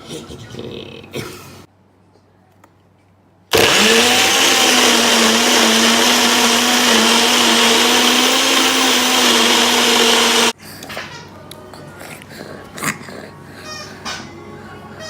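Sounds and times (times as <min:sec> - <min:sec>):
blender motor running: 0:03.5 - 0:10.5.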